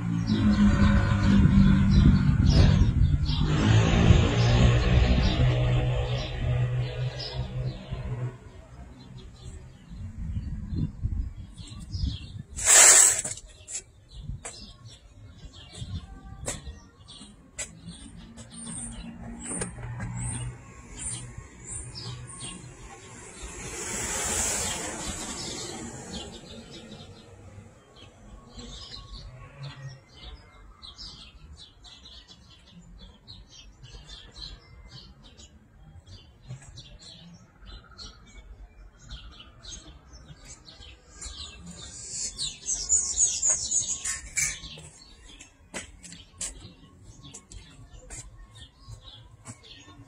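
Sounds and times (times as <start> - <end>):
small birds chirping: 0.0 - 50.0
whoosh of noise: 12.6 - 13.4, 23.0 - 26.7.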